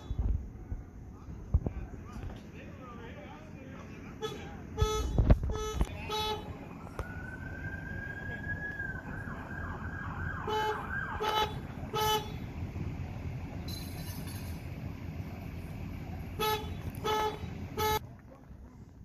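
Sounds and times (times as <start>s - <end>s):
short horn blasts: 4.2s - 6.6s, 10.4s - 12.5s, 16.3s - 18.0s
emergency vehicle siren: 6.4s - 13.5s.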